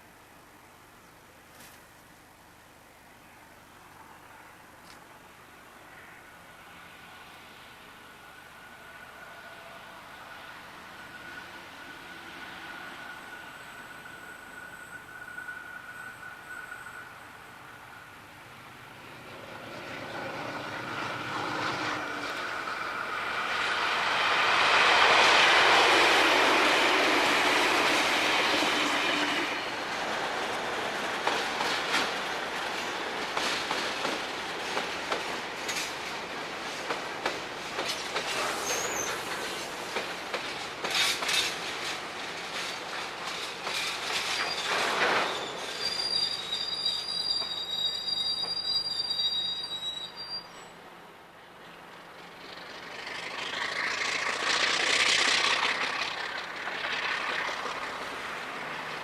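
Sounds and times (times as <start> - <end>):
diesel train passing: 3.9 - 59.0
high-pitched wheel squeal: 12.8 - 17.7, 38.5 - 39.3, 44.3 - 50.8
wheels clicking over rail joints: 29.8 - 45.7, 51.8 - 59.0.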